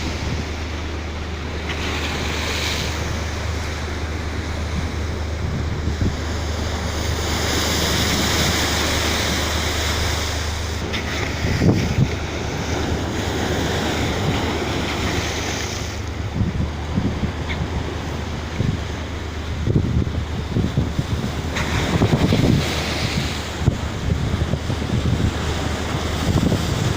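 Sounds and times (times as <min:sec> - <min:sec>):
low steady drone: 0:00.0 - 0:26.3
rushing sea water: 0:00.0 - 0:26.9
wind buffeting microphone: 0:00.0 - 0:26.9.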